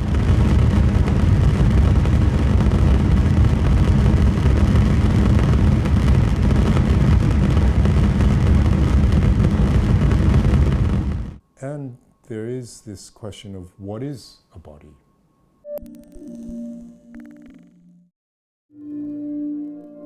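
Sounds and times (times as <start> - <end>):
loud low rumble: 0.0 - 11.4.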